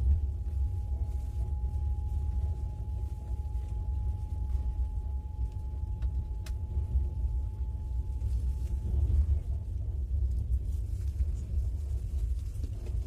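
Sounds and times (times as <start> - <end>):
faint high tone: 0.0 - 9.4
passenger train rumble: 0.0 - 13.0.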